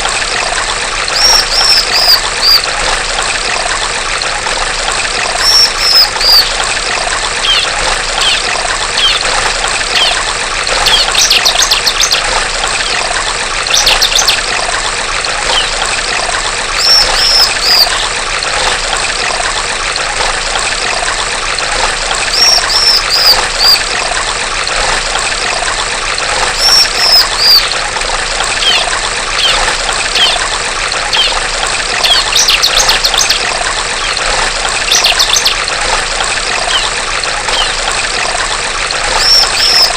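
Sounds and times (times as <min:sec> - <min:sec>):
running water trickling: 0:00.0 - 0:39.9
bird calling with rattling trills: 0:01.1 - 0:02.8, 0:05.2 - 0:14.6, 0:15.4 - 0:15.9, 0:16.8 - 0:18.1, 0:22.2 - 0:23.9, 0:26.3 - 0:27.8, 0:28.4 - 0:38.4, 0:39.0 - 0:39.9.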